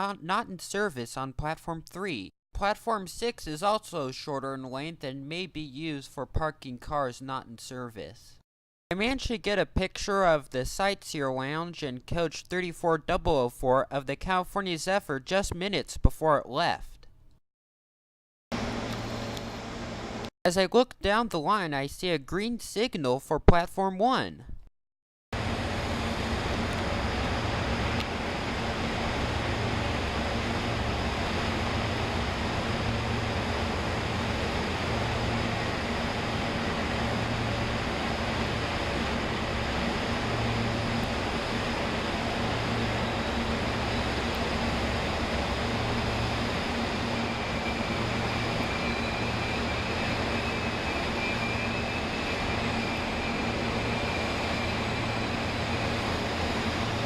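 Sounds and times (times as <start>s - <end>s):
faint high whine: 25.4s - 57.0s
train rumbling with low throb: 25.4s - 57.0s.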